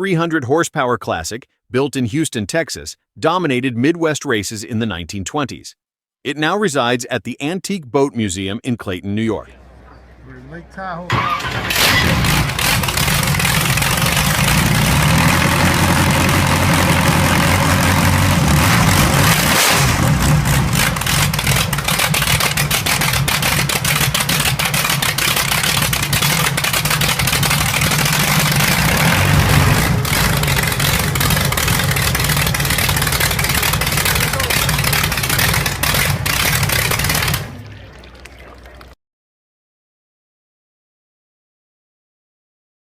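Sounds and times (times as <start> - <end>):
rapid sharp engine pulses: 10.8 - 37.9
aero engine running loud: 11.4 - 38.3.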